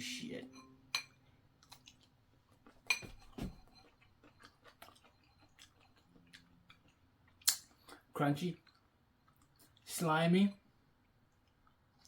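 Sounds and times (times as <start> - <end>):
chewing crunches: 1.6 - 2.9, 3.7 - 9.8
wet mouth clicks: 7.4 - 8.0.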